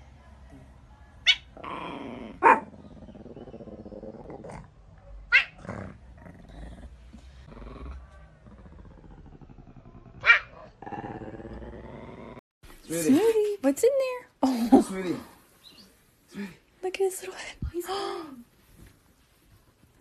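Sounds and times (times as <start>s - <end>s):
dog growling: 1.6s - 4.8s, 5.5s - 12.4s.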